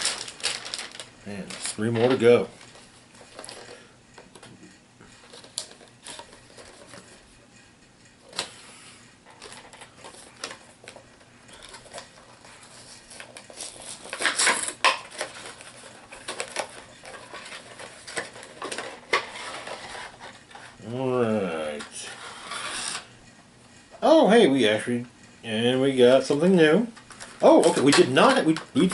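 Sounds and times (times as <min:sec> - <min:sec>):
packaging rustling and crinkling: 0:00.0 - 0:03.9, 0:09.3 - 0:20.8, 0:27.0 - 0:28.9.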